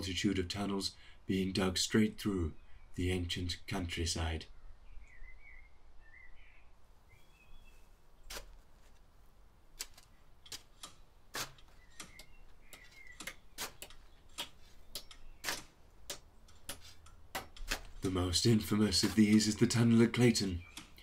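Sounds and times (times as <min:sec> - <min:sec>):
sharp clicks: 0:09.8 - 0:21.0.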